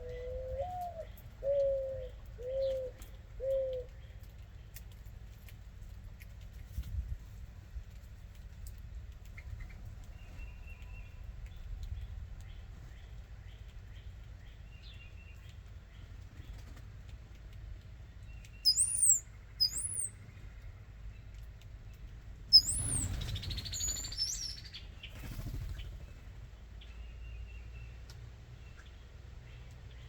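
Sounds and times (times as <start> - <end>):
songbird chirps: 0.0 - 6.7, 7.6 - 30.0
bird wings whirring: 22.6 - 24.2, 25.1 - 26.4.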